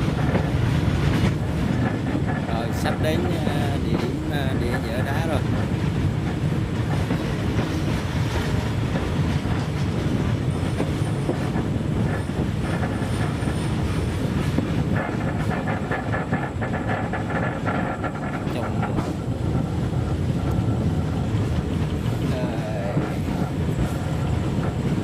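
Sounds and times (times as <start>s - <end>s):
train rolling with wheel clatter: 0.0s - 25.0s.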